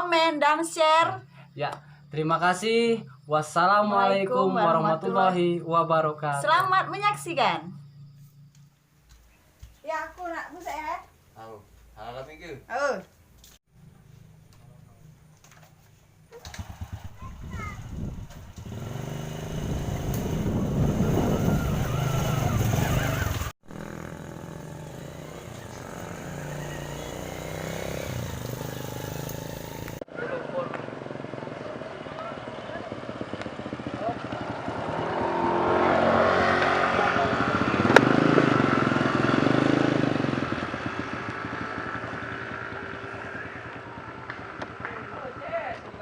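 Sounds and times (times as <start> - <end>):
motorcycle engine running: 13.7 - 46.0.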